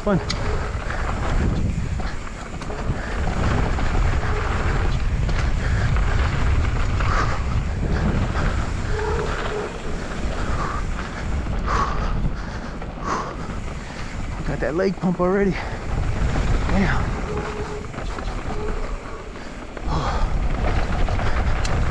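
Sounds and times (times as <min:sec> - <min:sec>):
wind rumbling on microphone: 0:00.0 - 0:21.9.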